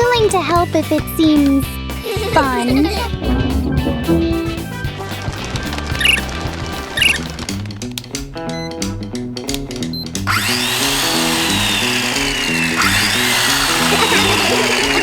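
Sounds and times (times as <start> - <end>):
background music: 0.0 - 15.0
small electric motor whirring: 10.3 - 15.0.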